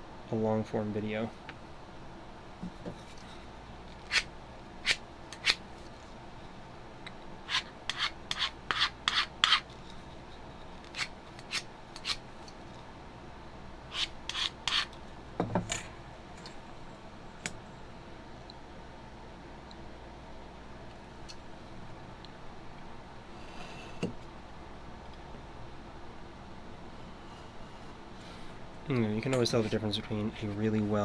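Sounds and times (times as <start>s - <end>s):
craft knife scraping through panel: 4.0s - 5.6s, 7.5s - 9.7s, 13.9s - 14.9s.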